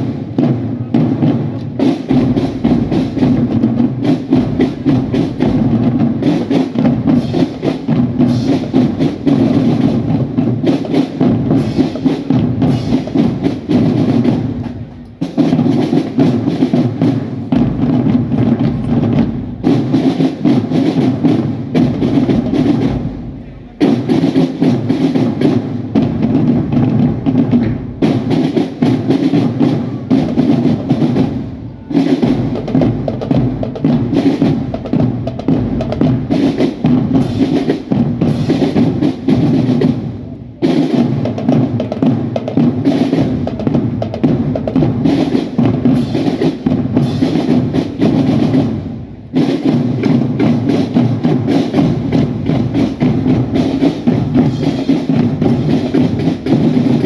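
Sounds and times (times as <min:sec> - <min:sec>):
marching drums playing: 0:00.0 - 0:57.0.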